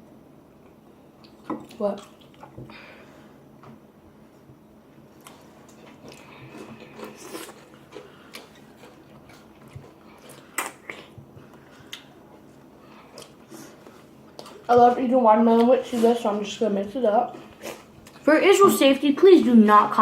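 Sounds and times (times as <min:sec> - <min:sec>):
person chewing watermelon: 0:01.2 - 0:02.6, 0:05.0 - 0:15.0.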